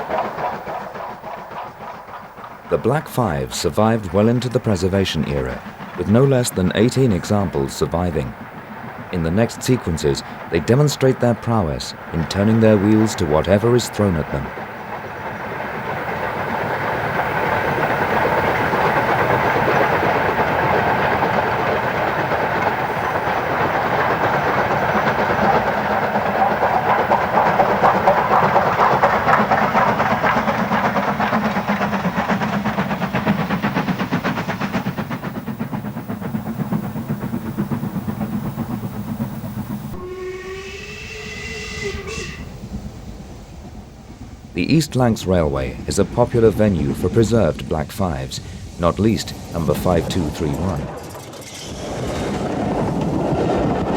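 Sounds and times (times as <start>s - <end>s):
rolling-stock noise: 0.0s - 41.0s, 42.0s - 53.9s
steam locomotive exhaust beats: 0.0s - 51.2s
steam whistle: 34.1s - 42.7s.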